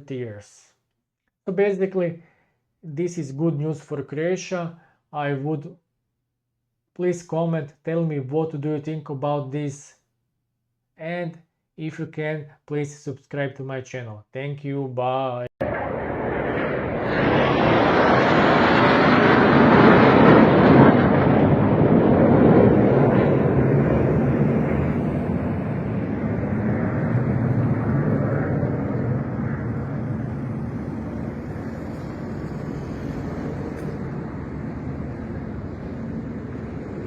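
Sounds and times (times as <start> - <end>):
aircraft passing: 15.6 - 37.0.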